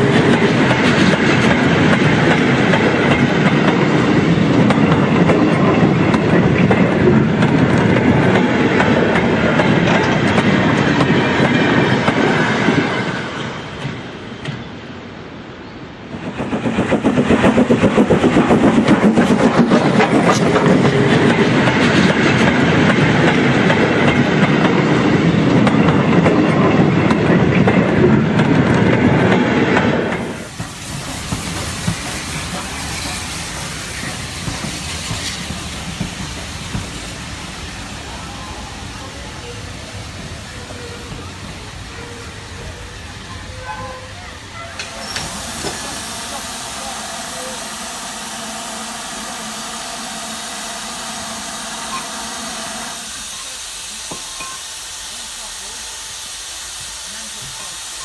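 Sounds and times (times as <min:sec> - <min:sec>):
model trains rumbling on track: 0:00.0 - 0:58.0.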